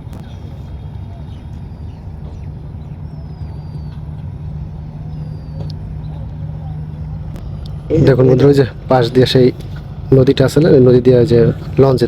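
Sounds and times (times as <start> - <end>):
boat engine drone: 0.0 - 12.0
faint bird chirps: 0.2 - 7.0.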